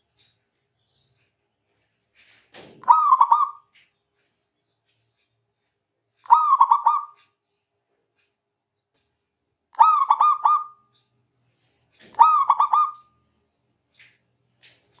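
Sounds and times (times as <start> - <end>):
dove cooing: 2.8 - 3.6, 6.3 - 7.2, 9.8 - 10.8, 12.2 - 13.1.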